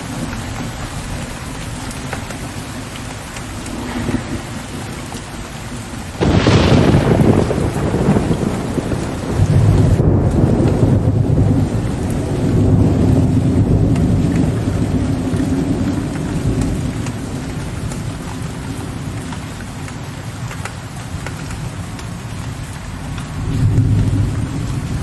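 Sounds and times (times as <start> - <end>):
rain drops ticking on a surface: 0.0 - 25.0
distant thunder rumbling: 0.4 - 19.2.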